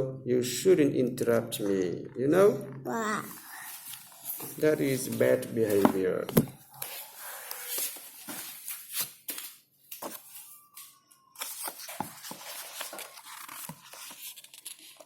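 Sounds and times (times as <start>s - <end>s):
book pages turning: 3.3s - 15.0s.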